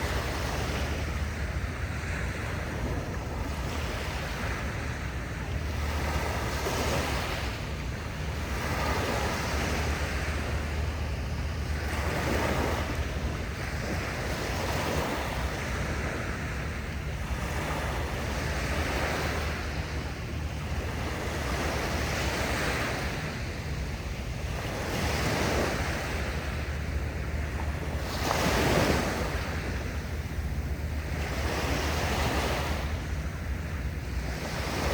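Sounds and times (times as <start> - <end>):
sea waves breaking: 0.0 - 34.9
wind rumble on microphone: 0.0 - 34.9.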